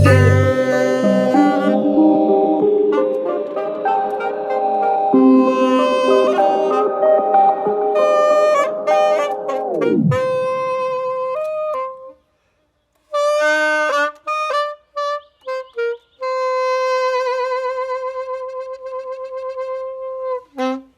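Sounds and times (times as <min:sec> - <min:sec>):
music sweeping down in pitch: 0:00.0 - 0:11.3
saxophone playing: 0:00.0 - 0:12.2, 0:13.1 - 0:20.9.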